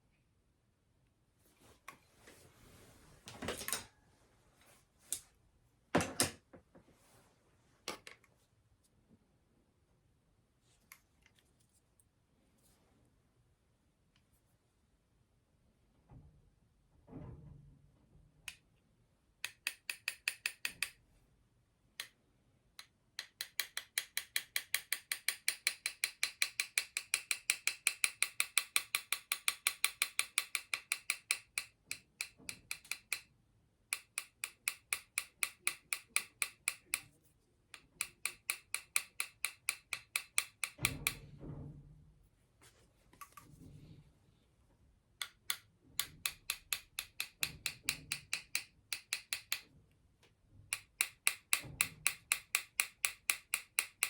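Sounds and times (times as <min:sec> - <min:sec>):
hammer tapping on metal tube: 0:19.4 - 0:21.0, 0:23.2 - 0:33.3, 0:33.9 - 0:37.1, 0:37.7 - 0:41.3, 0:45.2 - 0:49.7, 0:50.7 - 0:54.0.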